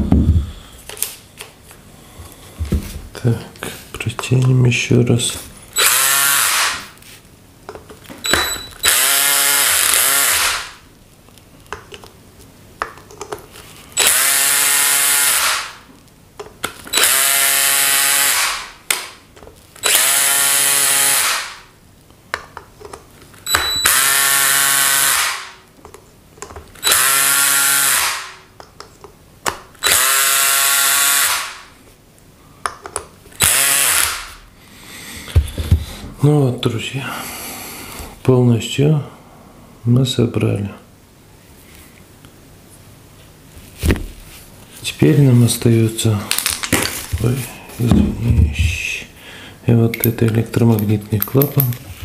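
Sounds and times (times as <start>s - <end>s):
electric drill-driver whining: 5.8s - 6.8s, 8.2s - 10.7s, 14.0s - 15.8s, 16.9s - 18.7s, 19.8s - 21.6s, 23.5s - 25.5s, 26.8s - 28.4s, 29.8s - 31.6s, 33.4s - 34.4s.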